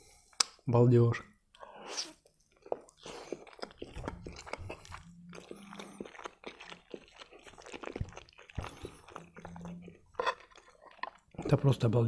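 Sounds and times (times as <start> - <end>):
crunchy chewing: 2.2 - 11.8.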